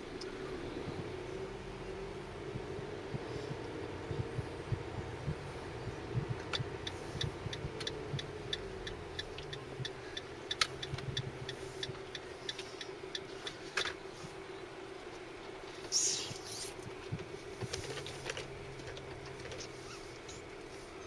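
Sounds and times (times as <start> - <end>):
car engine hum and road noise: 0.0 - 21.0
turn signal ticking: 0.1 - 13.6, 16.8 - 21.0.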